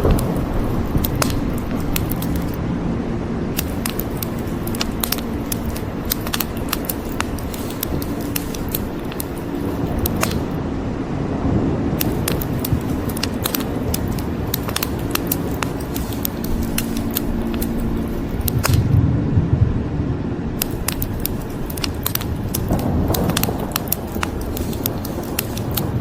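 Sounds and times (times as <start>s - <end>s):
rain hissing: 0.0s - 2.6s, 3.6s - 10.6s, 12.0s - 19.0s, 20.6s - 26.0s
wood fire crackling and popping: 0.0s - 2.6s, 3.6s - 10.6s, 12.0s - 19.0s, 20.6s - 26.0s
low rumble of thunder: 18.8s - 20.6s.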